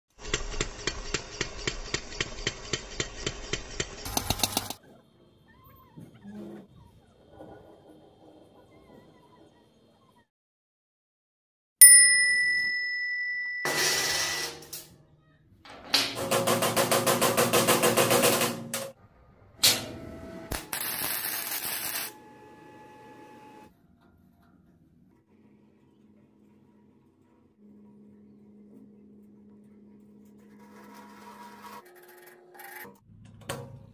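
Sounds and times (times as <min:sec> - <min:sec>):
gear-driven machine clattering: 0:00.2 - 0:04.8.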